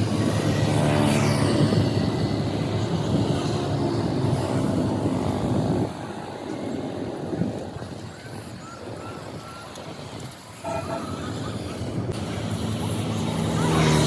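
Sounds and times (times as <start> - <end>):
heavy vehicle engine rumbling: 10.6 - 14.0.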